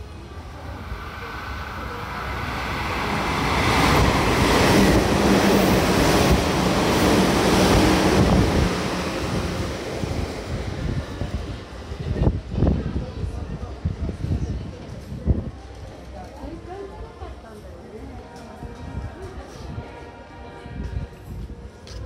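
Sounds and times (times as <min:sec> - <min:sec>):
electric train passing: 0:00.0 - 0:13.0
wind buffeting microphone: 0:00.8 - 0:15.7.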